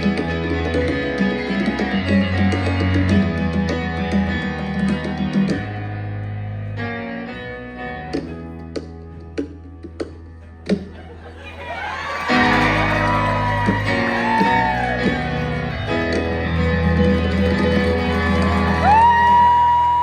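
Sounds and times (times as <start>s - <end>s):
audience whooping and shouting: 11.4s - 20.0s
live band music: 12.3s - 19.9s.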